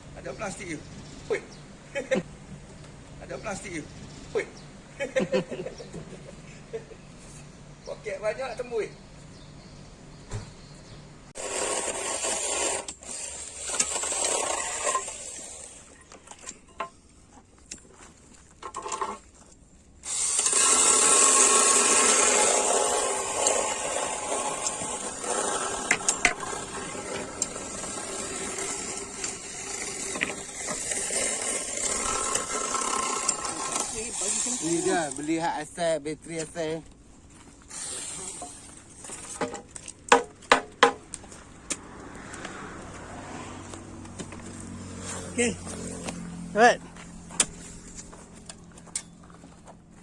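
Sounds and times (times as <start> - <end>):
power tool motor running: 11.4 - 16.0, 20.0 - 35.3.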